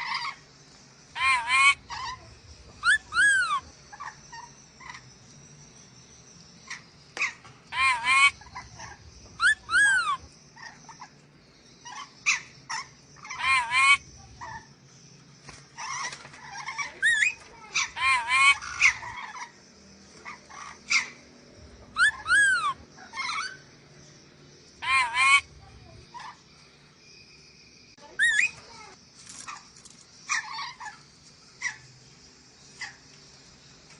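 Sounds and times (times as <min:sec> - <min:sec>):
parrot screeching: 0:01.2 - 0:02.2, 0:02.8 - 0:04.5, 0:07.7 - 0:11.0, 0:11.8 - 0:14.6, 0:15.8 - 0:19.5, 0:22.0 - 0:23.6, 0:24.8 - 0:25.5.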